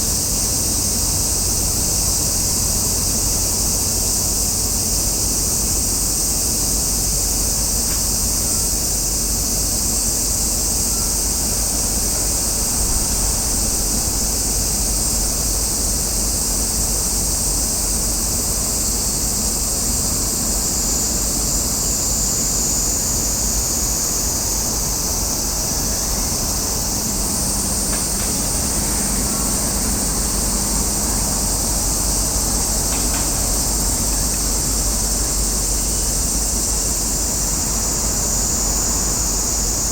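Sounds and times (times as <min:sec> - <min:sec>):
cicada chorus drone: 0:00.0 - 0:39.9
wind rumble: 0:11.2 - 0:17.3.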